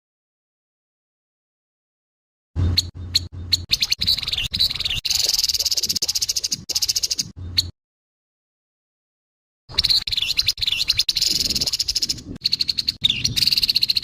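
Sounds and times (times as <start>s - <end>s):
bird sharp chips: 2.6s - 7.7s, 9.7s - 14.0s.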